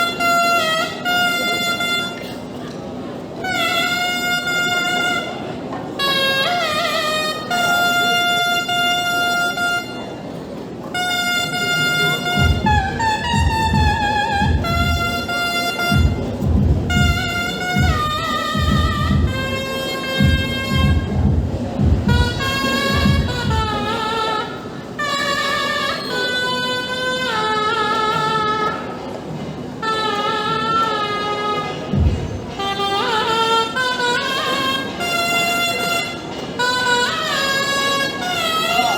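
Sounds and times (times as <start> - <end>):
reedy wind instrument: 0.0 - 38.9
low drum beats: 12.2 - 24.1, 31.9 - 33.3.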